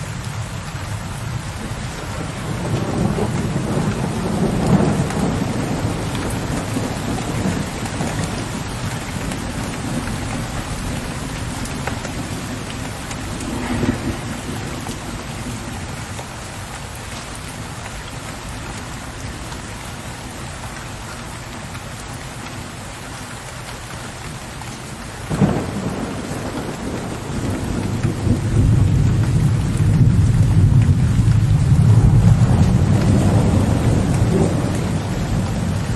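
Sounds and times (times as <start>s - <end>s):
steady rain falling: 0.0s - 35.9s
low thunder rumble: 1.5s - 16.1s, 25.3s - 35.9s
thunder crack: 2.2s - 8.5s, 12.1s - 15.7s, 25.3s - 35.9s.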